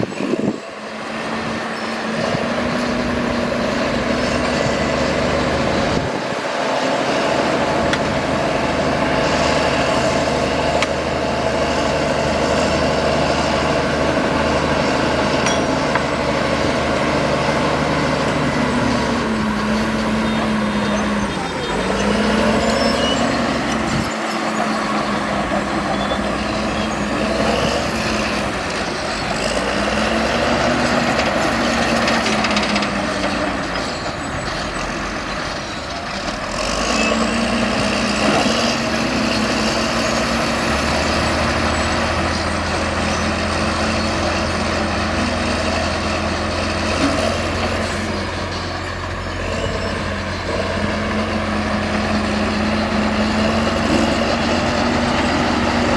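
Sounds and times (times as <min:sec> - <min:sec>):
heavy machine engine running: 0:00.0 - 0:55.9.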